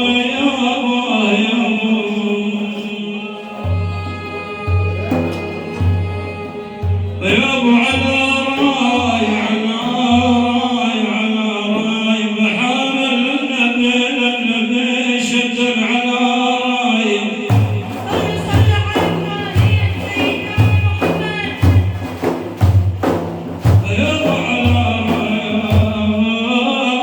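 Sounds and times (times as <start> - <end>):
man singing: 0.0 - 27.0
hand drum beats and slaps: 3.6 - 10.9, 17.5 - 26.4.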